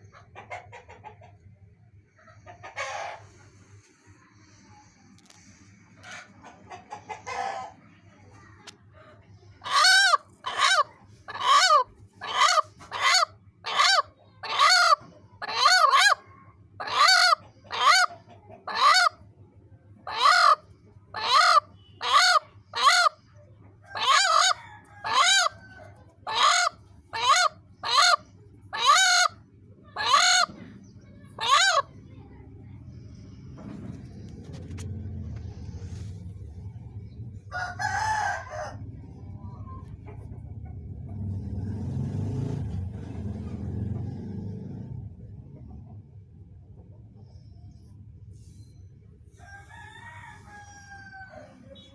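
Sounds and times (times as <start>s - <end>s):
hen giving bark-like calls: 9.6s - 16.2s, 16.8s - 19.2s, 20.1s - 23.2s, 23.9s - 25.6s, 26.2s - 30.6s, 31.3s - 31.9s.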